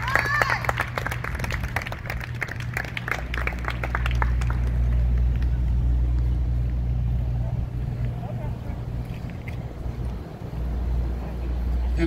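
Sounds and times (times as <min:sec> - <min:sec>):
audience applause: 0:00.0 - 0:05.8
steady low rumble: 0:00.0 - 0:12.0.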